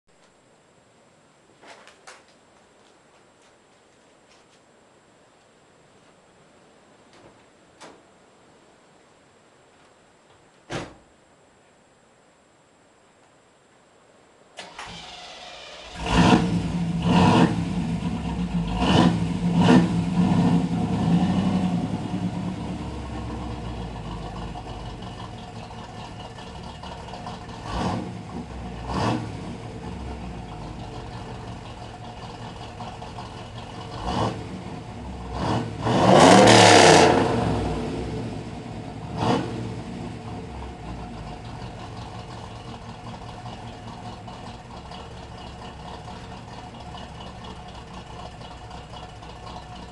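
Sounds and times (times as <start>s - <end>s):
car engine revving and idling: 15.0s - 49.9s.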